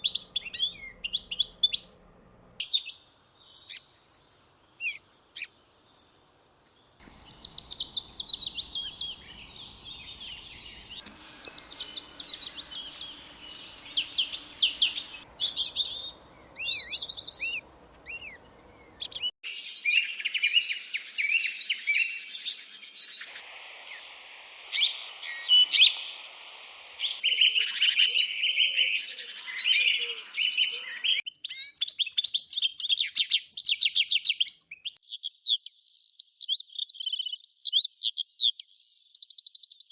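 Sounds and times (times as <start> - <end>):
background noise: 0.0 - 31.1
small birds chirping: 2.6 - 31.8.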